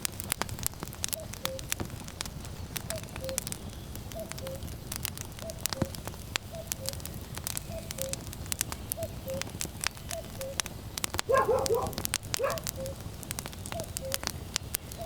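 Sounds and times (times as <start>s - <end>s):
wood fire crackling and popping: 0.0s - 15.0s
cuckoo calling: 1.2s - 1.8s, 2.8s - 4.8s, 5.4s - 10.7s, 11.3s - 13.0s, 13.7s - 15.0s
puppy yelping: 11.3s - 13.0s.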